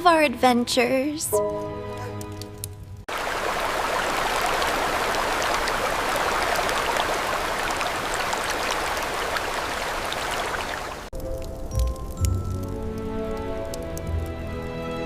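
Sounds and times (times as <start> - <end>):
water rushing: 3.1 - 11.1.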